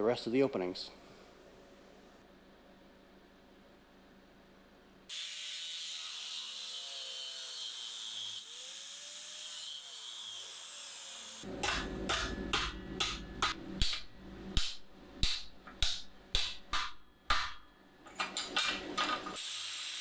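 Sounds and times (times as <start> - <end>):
welding arc crackling and hissing: 19.4 - 20.0.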